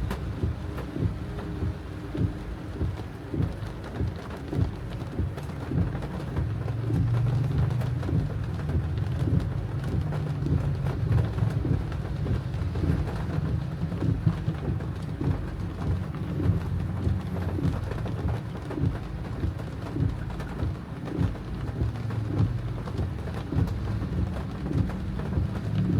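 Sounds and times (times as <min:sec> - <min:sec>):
heavy rain drumming on car roof: 0:00.0 - 0:25.9
low rumble: 0:00.0 - 0:25.9.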